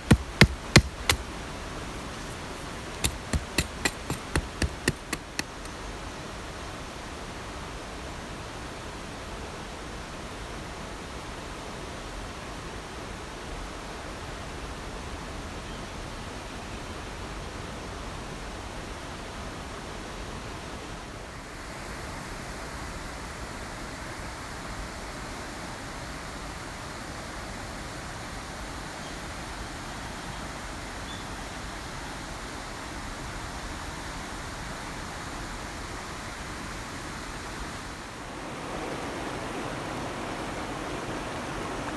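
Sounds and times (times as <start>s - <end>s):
rushing water: 0.0s - 5.7s, 37.6s - 41.9s.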